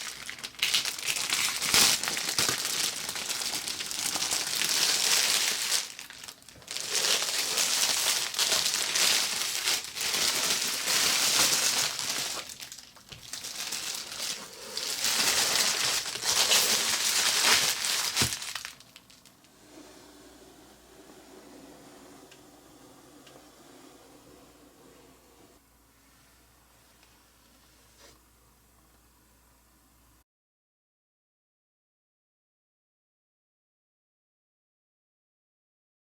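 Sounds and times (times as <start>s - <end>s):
packaging crinkling: 0.0s - 19.5s.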